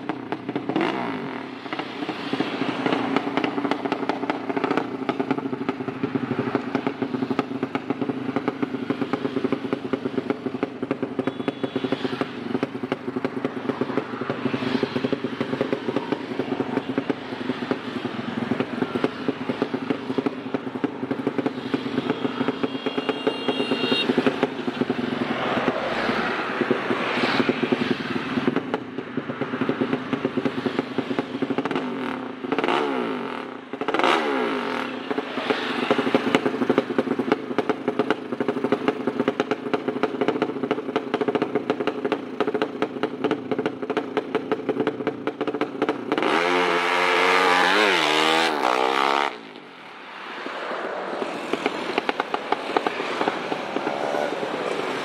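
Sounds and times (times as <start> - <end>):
racing motorcycle engine revving: 0.0 - 10.9, 23.7 - 49.6.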